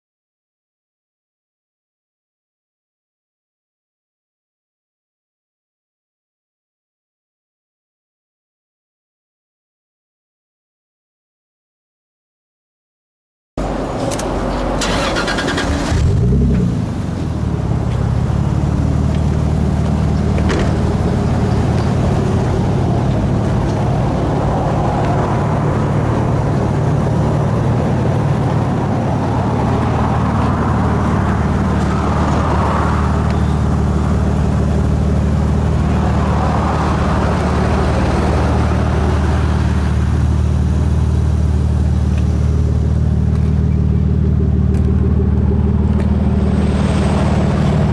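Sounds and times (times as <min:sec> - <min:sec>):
car engine revving and idling: 0:13.6 - 0:47.9
engine starter cranking: 0:14.0 - 0:16.3.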